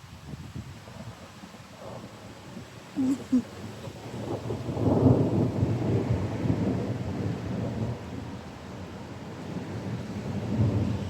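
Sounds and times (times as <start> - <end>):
thunder rumbling: 9.6 - 11.0.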